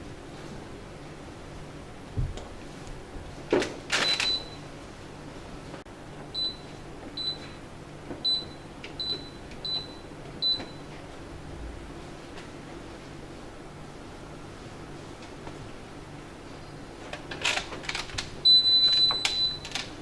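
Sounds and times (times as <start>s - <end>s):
washing machine buzzer beeps: 4.0s - 4.7s, 6.3s - 7.6s, 8.2s - 10.9s, 18.4s - 19.7s.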